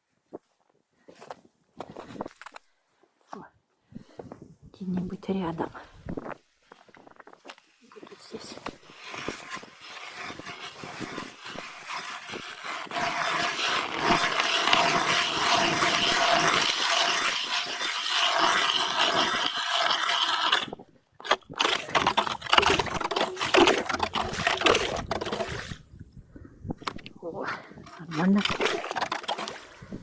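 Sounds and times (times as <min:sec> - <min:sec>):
ice knocks and scrapes: 0:06.2 - 0:26.0, 0:27.8 - 0:30.0
ice auger grinding: 0:07.9 - 0:26.0, 0:27.8 - 0:30.0.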